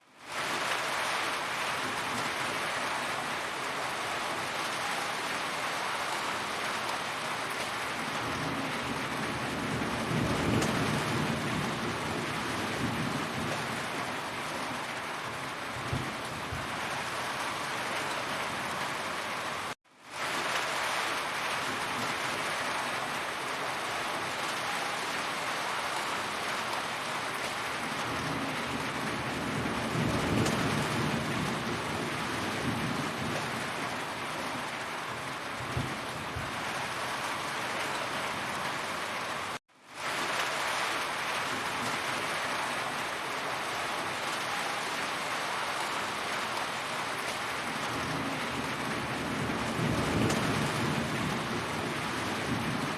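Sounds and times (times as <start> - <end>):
heavy rain falling: 0.0 - 52.9
low thunder rumbling: 8.0 - 14.8, 15.7 - 17.0, 27.8 - 34.6, 35.5 - 36.8, 47.7 - 52.9.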